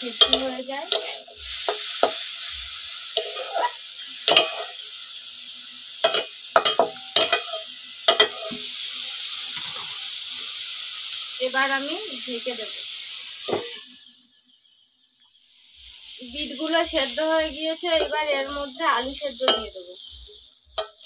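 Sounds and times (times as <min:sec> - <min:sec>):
vegetables sizzling in a pan: 0:00.0 - 0:21.0
metal spatula scraping a pan: 0:00.1 - 0:02.5, 0:03.1 - 0:04.8, 0:06.0 - 0:10.1, 0:17.9 - 0:21.0.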